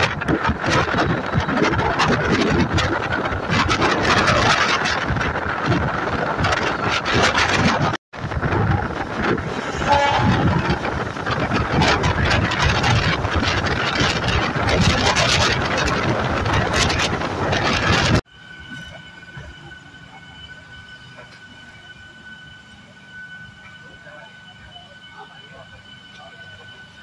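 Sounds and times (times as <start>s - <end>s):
train rumbling and rattling: 0.0s - 27.0s.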